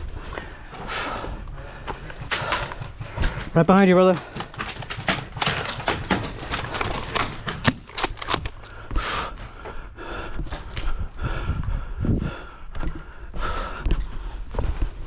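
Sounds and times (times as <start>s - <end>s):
footsteps: 0.0s - 15.0s
clatter of carried gear: 1.8s - 8.8s.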